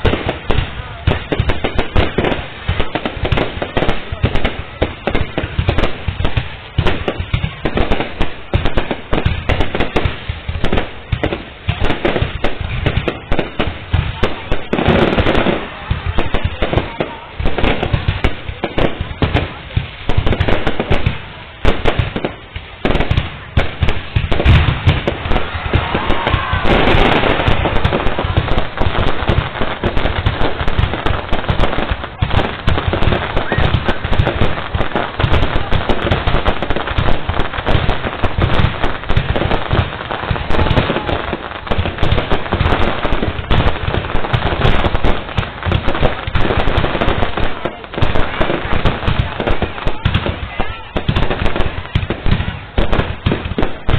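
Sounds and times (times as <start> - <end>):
fireworks bangs and crackles: 0.0 - 53.9.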